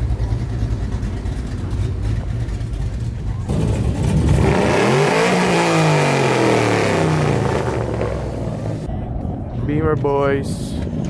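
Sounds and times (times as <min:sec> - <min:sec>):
car engine accelerating: 0:00.0 - 0:08.9.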